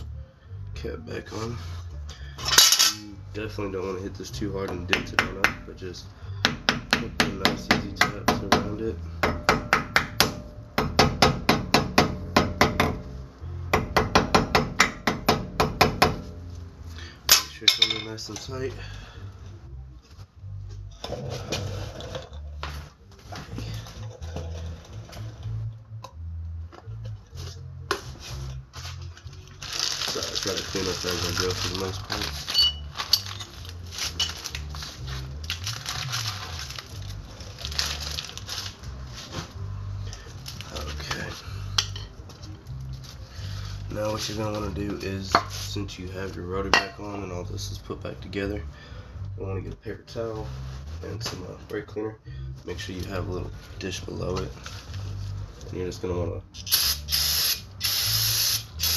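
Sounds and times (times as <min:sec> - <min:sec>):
paper towel crumpling: 0:29.6 - 0:39.3.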